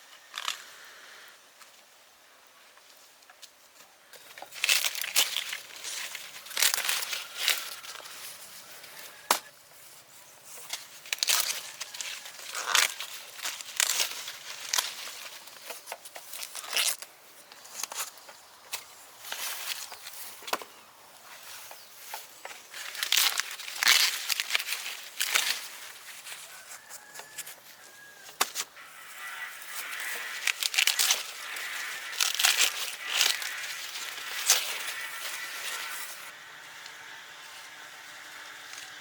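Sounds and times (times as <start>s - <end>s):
dry material rustling and tearing: 4.4s - 9.4s, 10.4s - 17.1s, 21.4s - 39.0s.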